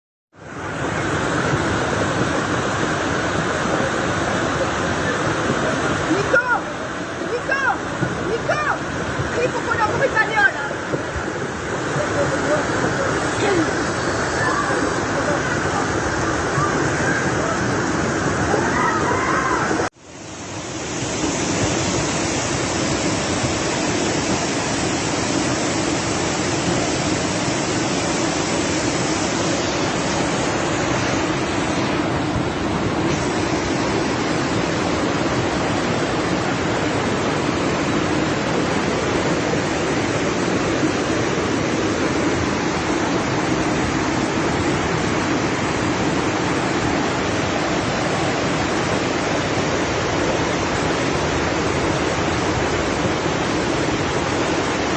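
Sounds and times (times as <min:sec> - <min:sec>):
floodwater rushing: 0:00.3 - 0:54.9.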